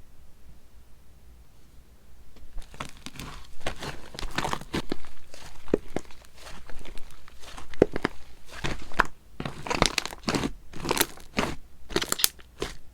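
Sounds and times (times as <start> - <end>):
slime squished by hand crackling: 2.6 - 12.9.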